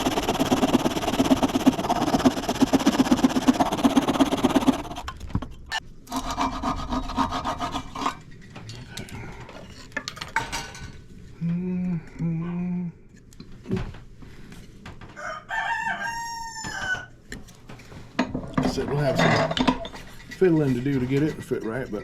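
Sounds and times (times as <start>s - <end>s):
rasping on wooden dowel: 0.0s - 5.1s, 6.1s - 8.1s, 19.9s - 22.0s
rooster crowing: 15.1s - 17.2s.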